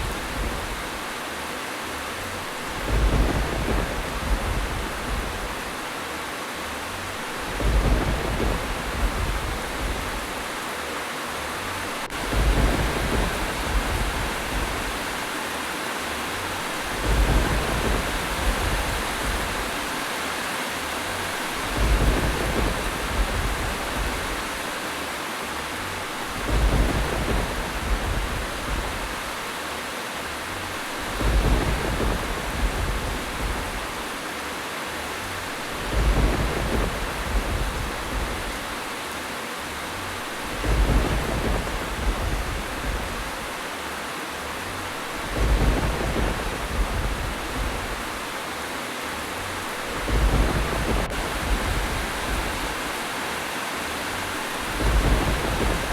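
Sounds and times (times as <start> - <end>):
low thunder-like rumble: 0.0 - 1.1, 2.1 - 5.9, 7.0 - 10.7, 11.6 - 15.3, 16.2 - 20.0, 21.0 - 24.8, 25.8 - 29.5, 30.6 - 34.2, 35.1 - 38.9, 40.0 - 43.8, 44.5 - 48.5, 49.2 - 53.0, 54.3 - 55.9
heavy rain: 0.0 - 55.9.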